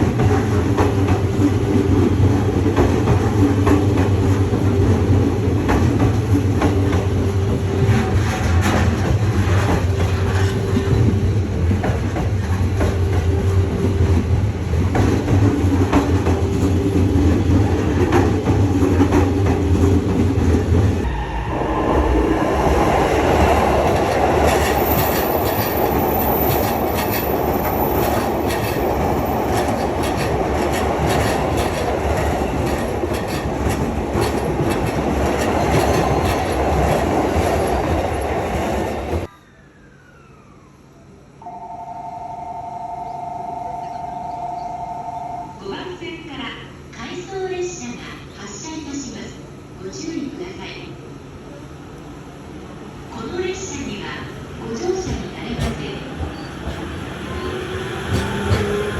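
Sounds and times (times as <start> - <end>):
train wheels clicking on rails: 0.0 - 21.1, 22.2 - 39.3, 54.8 - 58.9
loud rushing noise: 21.0 - 26.0, 56.1 - 58.9.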